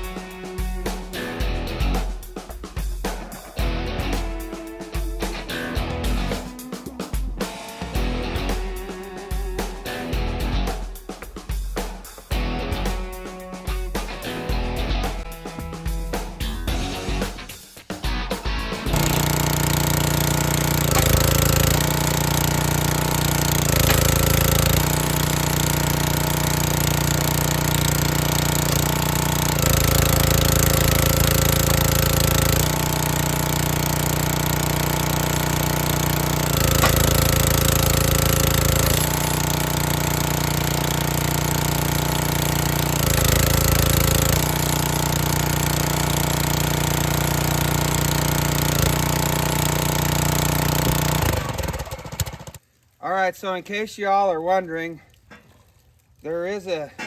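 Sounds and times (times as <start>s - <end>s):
log splitter engine labouring: 18.8s - 52.6s.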